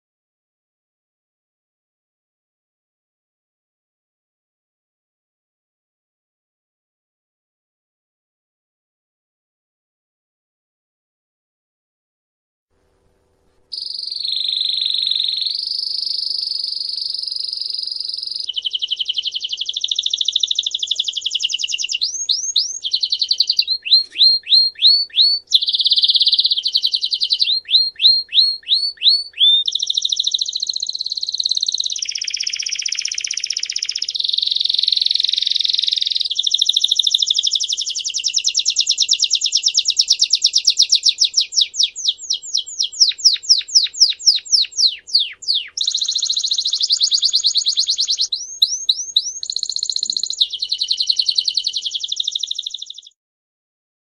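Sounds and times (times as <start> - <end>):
songbird trilling: 13.7 - 53.2.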